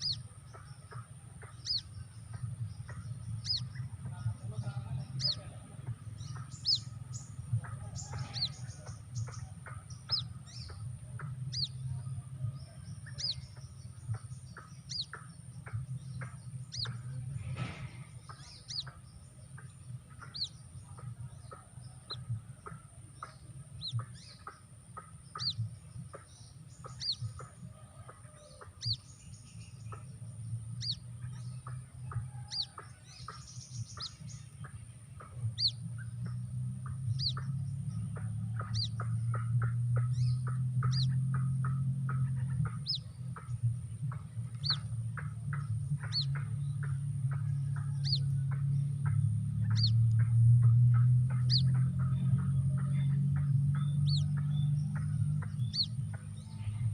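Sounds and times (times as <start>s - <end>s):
chick peeping: 0.0s - 56.9s
low hum: 0.0s - 56.9s
quick clicking calls: 19.6s - 25.6s, 37.1s - 56.3s.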